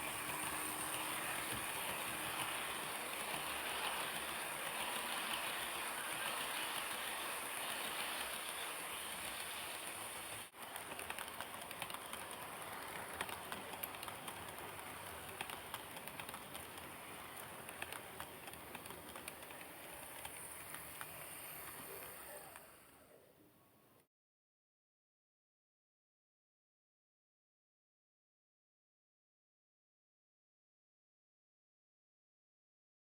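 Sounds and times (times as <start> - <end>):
wheels clicking over rails: 0.0 - 23.2
model train wheels and motor hiss: 0.0 - 24.0.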